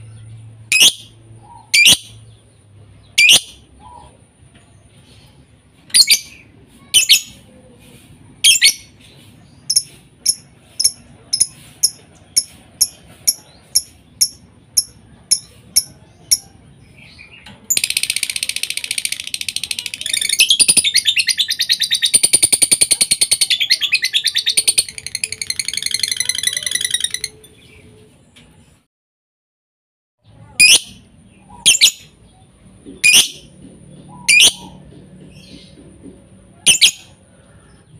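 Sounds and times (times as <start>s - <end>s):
lovebird chirping: 0.0s - 4.2s, 5.0s - 7.4s, 8.4s - 28.0s, 30.4s - 33.5s, 34.1s - 34.8s, 36.6s - 37.2s
lovebird rapid chatter: 6.0s - 7.4s, 9.7s - 16.4s, 17.7s - 27.4s, 31.6s - 32.1s, 36.6s - 37.0s.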